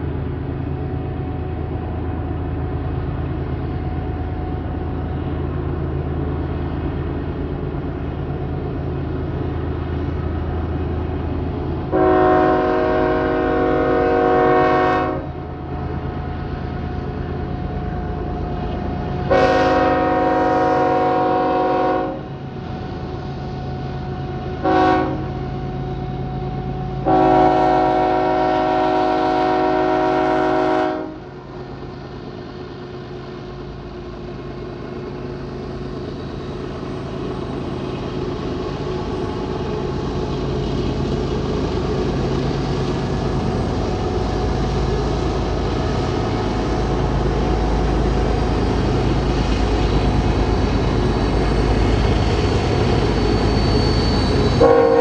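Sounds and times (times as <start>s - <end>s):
low rumble of locomotives: 0.0s - 55.0s
locomotive horn blasts: 11.9s - 15.4s, 19.3s - 22.3s, 24.6s - 25.4s, 27.0s - 31.3s, 54.6s - 55.0s.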